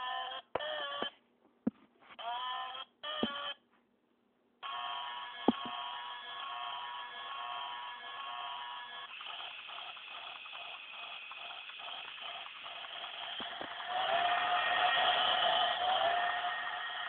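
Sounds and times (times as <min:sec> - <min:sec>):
toy train motor clicking: 0:04.6 - 0:17.0.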